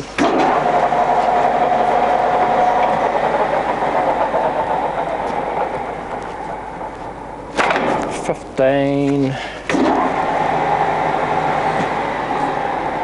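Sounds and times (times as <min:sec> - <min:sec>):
lathe gear whine: 0:00.0 - 0:08.2, 0:09.7 - 0:13.0
mechanical rattle of lathe: 0:00.2 - 0:08.2.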